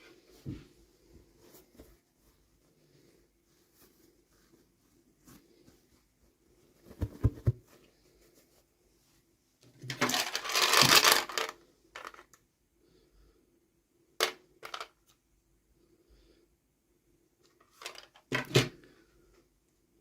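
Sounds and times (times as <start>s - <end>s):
small plastic pieces clicking: 9.9s - 12.3s
packaging crinkling: 10.0s - 11.5s.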